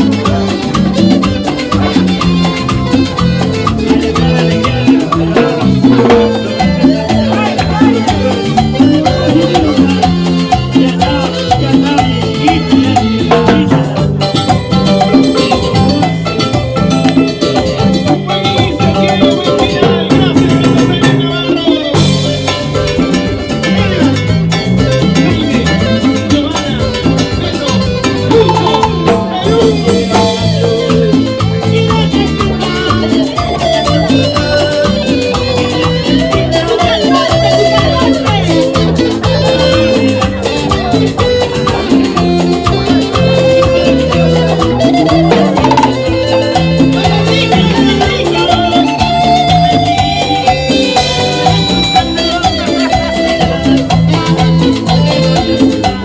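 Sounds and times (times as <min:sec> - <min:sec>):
band playing latin dance music: 0:00.0 - 0:56.0
percussion beat: 0:00.0 - 0:56.0.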